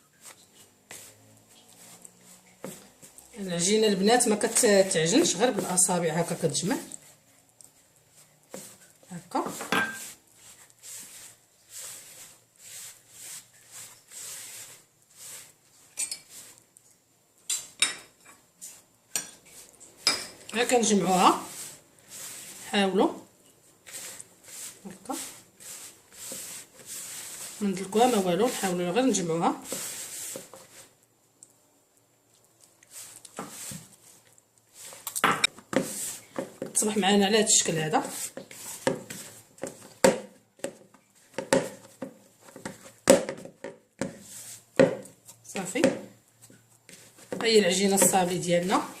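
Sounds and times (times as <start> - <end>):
fingertips rubbing dough in a bowl: 0.2 - 16.6, 18.6 - 31.0, 32.8 - 35.0, 35.8 - 40.0, 44.1 - 45.8, 46.4 - 49.0.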